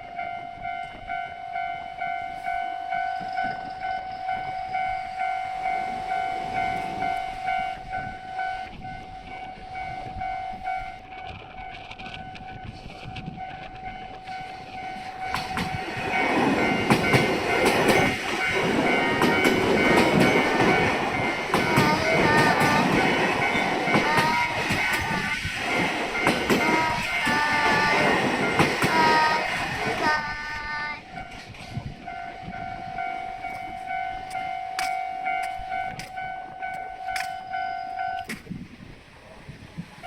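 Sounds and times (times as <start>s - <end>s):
crossing warning alarm ringing: 0.0s - 40.0s
train passing: 0.0s - 40.0s
wheels clattering over rail joints: 13.1s - 30.2s.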